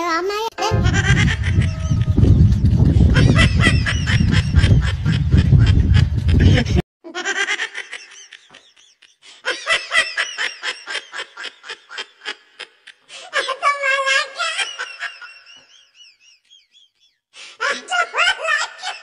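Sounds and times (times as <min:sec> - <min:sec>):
high-pitched laughter: 0:00.6 - 0:16.3, 0:17.6 - 0:19.0.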